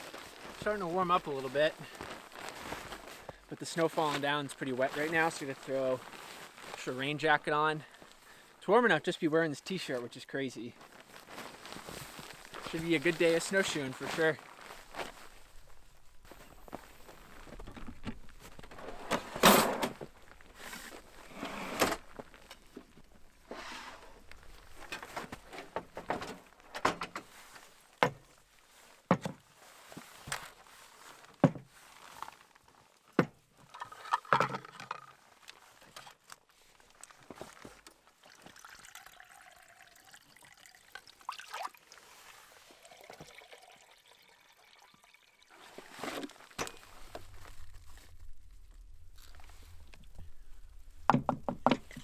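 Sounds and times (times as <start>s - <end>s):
liquid being poured: 38.2s - 45.9s.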